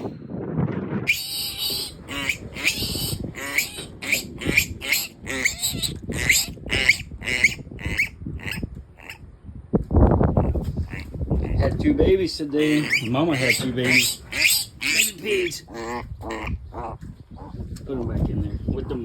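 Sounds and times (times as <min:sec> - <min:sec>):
piglets squealing: 0:01.1 - 0:09.2, 0:10.9 - 0:11.7, 0:12.6 - 0:17.5.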